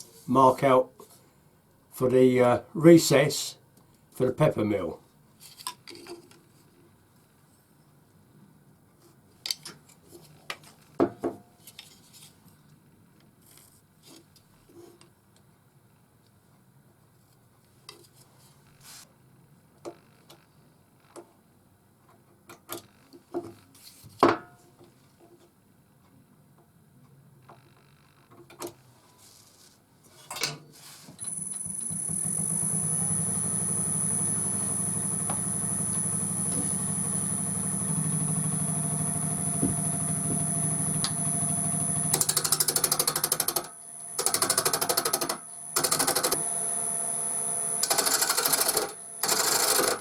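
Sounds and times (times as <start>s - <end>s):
lathe motor humming and whining: 31.3s - 50.0s.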